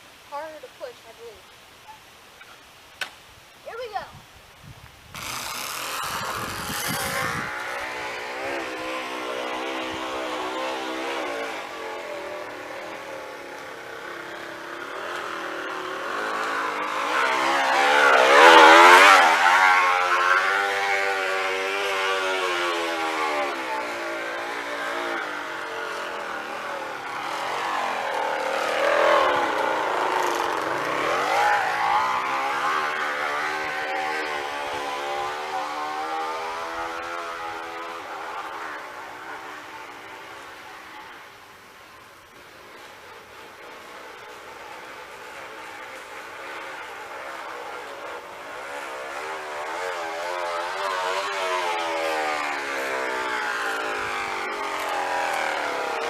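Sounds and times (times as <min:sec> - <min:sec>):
plastic bottle buzzing on bike tyre: 0:05.0 - 0:39.6.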